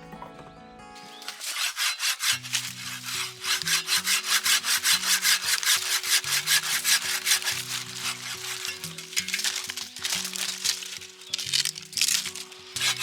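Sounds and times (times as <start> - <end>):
saw cutting through wood: 1.0 - 13.0.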